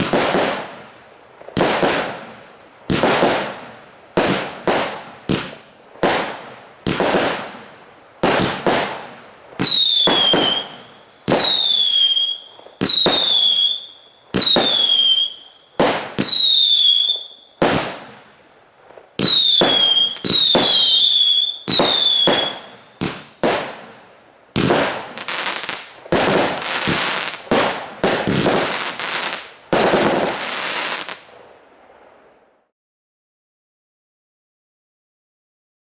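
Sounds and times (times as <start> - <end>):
crackling firework bangs: 0.0 - 31.4
firework battery firing shots: 8.2 - 13.8, 19.2 - 23.9, 24.6 - 31.3
falling whistle of fireworks: 8.3 - 18.0, 18.9 - 23.7.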